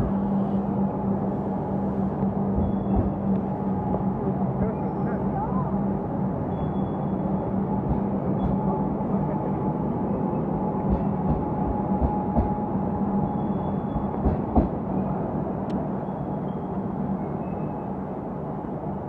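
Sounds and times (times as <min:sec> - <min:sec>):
thin steady whine: 0:00.0 - 0:14.2
train wheels rumbling: 0:00.0 - 0:17.4.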